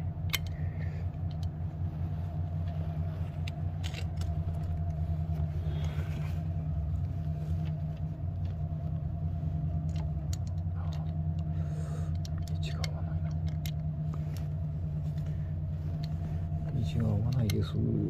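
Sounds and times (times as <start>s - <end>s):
steady low hum: 0.0s - 18.0s
metal parts clicking and tapping: 0.2s - 1.6s, 3.4s - 5.0s, 9.9s - 11.5s, 12.1s - 13.9s.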